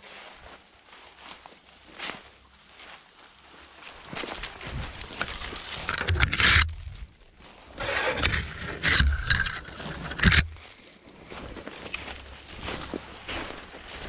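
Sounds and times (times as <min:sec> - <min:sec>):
footsteps through brush and leaves: 0:00.0 - 0:14.0.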